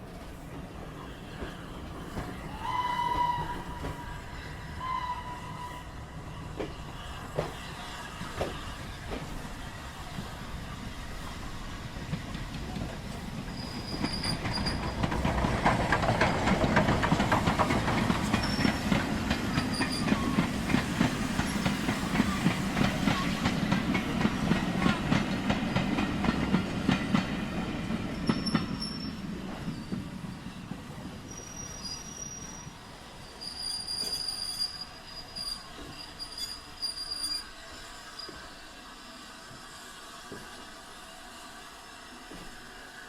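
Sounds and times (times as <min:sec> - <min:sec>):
train rumble and clatter: 0:00.0 - 0:43.0
train whistle: 0:02.5 - 0:06.1, 0:19.5 - 0:20.8.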